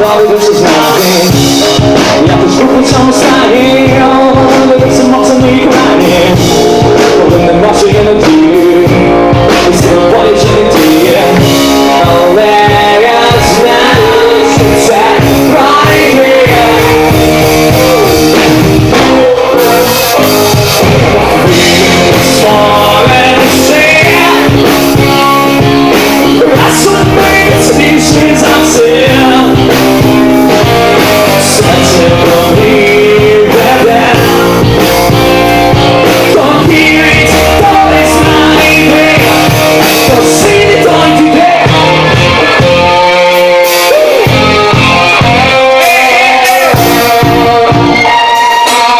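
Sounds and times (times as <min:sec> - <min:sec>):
person singing: 0:00.0 - 0:48.9
rock band playing: 0:00.0 - 0:48.9.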